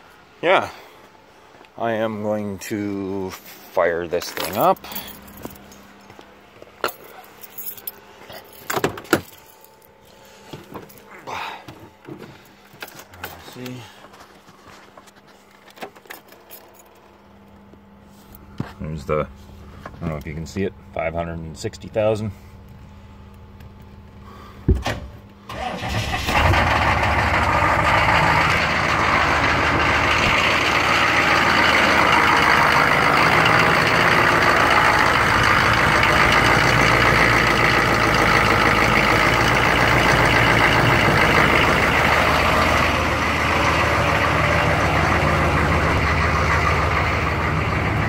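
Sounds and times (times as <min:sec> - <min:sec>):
diesel truck engine starting and idling: 0:23.2 - 0:48.0.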